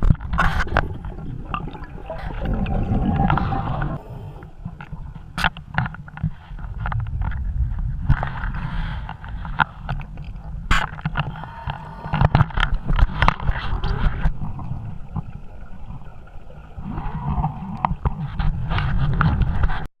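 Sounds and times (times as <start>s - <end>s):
rushing exhaled bubbles: 0.0s - 5.2s, 11.2s - 19.1s
diver breathing through regulator: 2.1s - 5.0s, 11.2s - 14.4s
low rumble: 6.7s - 9.3s.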